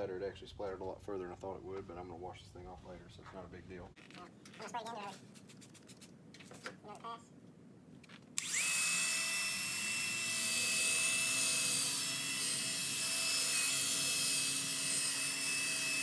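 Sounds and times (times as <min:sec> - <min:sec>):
power drill motor whining: 0:08.4 - 0:16.0.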